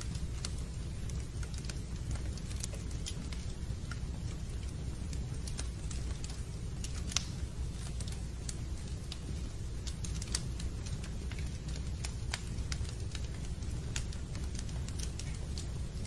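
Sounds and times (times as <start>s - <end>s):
fireplace crackling and popping: 0.0s - 16.0s
low rumble of fire: 0.0s - 16.0s.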